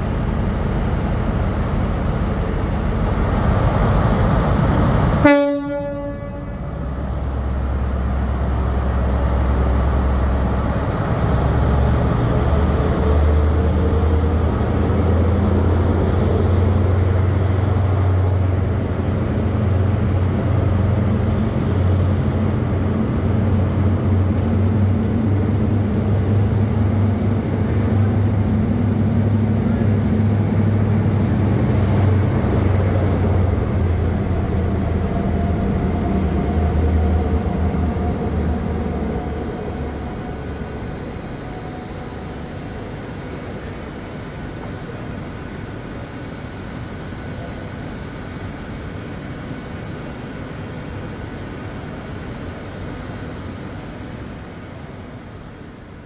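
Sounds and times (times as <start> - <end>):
train running with low drone: 0.0 - 56.0.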